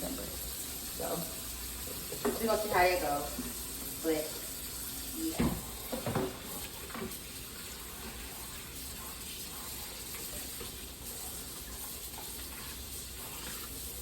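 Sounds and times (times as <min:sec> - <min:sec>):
dishes being rinsed: 0:00.0 - 0:14.0
faucet running into sink: 0:00.0 - 0:14.0.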